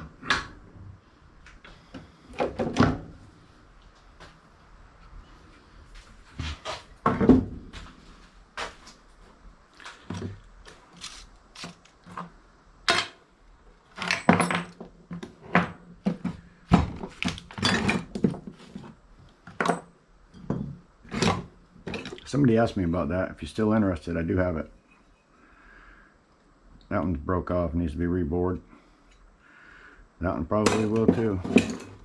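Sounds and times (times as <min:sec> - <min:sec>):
scrap metal clinking and clattering: 0:13.9 - 0:14.9, 0:17.1 - 0:22.3, 0:30.7 - 0:32.0.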